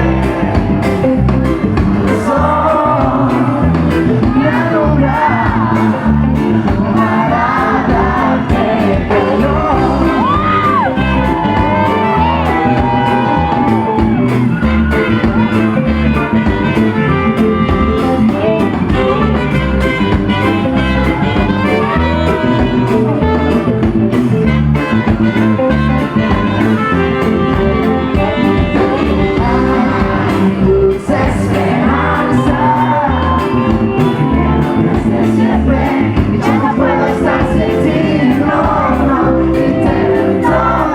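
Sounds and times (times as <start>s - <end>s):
person singing lead vocal: 0.0s - 14.3s, 26.2s - 40.9s
reggae band playing: 0.0s - 40.9s.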